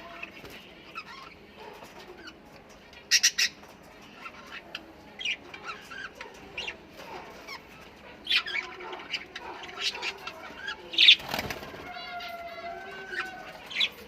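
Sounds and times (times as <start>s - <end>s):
parrot chirps and calls: 0.0s - 14.0s
parrots squawking: 3.0s - 14.0s.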